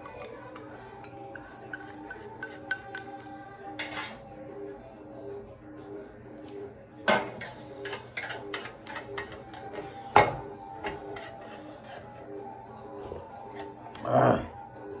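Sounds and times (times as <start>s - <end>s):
spoon scraping a plate: 0.0s - 4.2s, 7.1s - 12.3s, 13.0s - 14.1s
soft background music: 0.0s - 15.0s.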